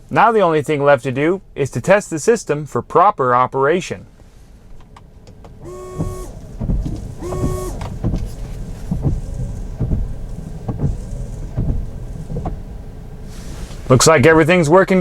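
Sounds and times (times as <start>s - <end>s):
wipers thumping: 5.4s - 12.7s
washer pump whining: 5.6s - 11.7s.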